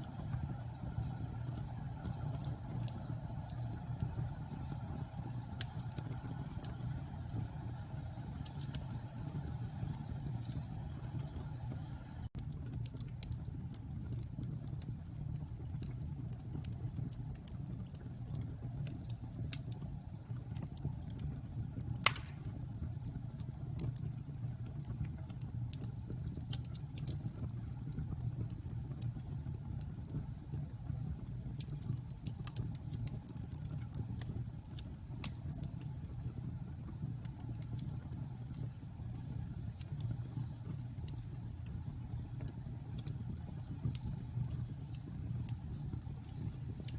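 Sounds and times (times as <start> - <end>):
bonfire wood crackling: 0.0 - 46.9
low rumble of fire: 0.0 - 46.9
sharp loud pop: 22.1 - 22.5.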